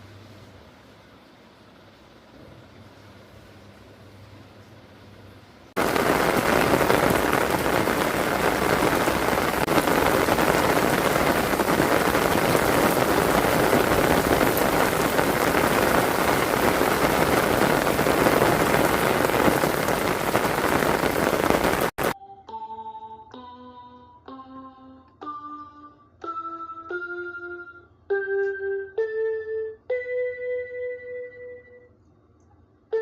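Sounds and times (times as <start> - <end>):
heavy rain pouring: 5.8 - 22.2.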